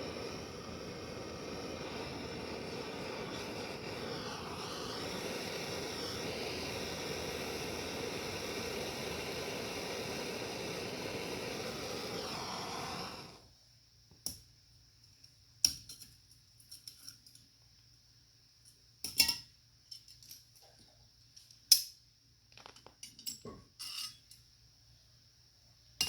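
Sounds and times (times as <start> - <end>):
steady hiss: 0.0 - 15.1.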